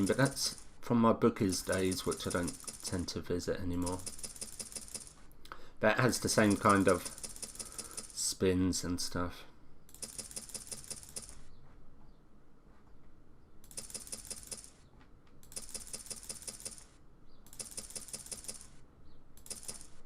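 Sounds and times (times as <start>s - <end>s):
rapid clicking and clatter: 1.5s - 3.2s, 3.8s - 5.2s, 6.4s - 8.2s, 9.9s - 11.4s, 13.7s - 14.8s, 15.4s - 16.9s, 17.5s - 18.8s, 19.4s - 19.9s.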